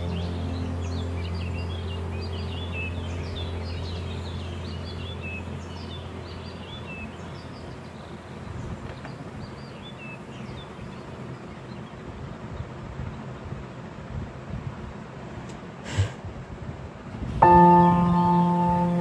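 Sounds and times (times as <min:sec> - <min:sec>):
small birds chirping: 0:00.0 - 0:14.1
steady low hum: 0:00.0 - 0:19.0.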